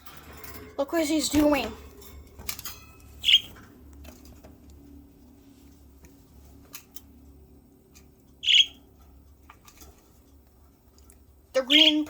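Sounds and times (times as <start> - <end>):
budgerigar chirp: 3.2 - 3.5, 8.4 - 8.8, 11.6 - 12.0.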